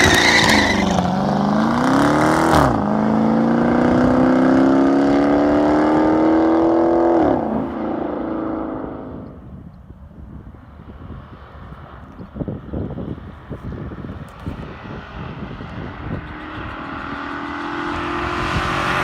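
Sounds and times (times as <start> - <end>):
car exhaust under hard acceleration: 10.2 - 19.0.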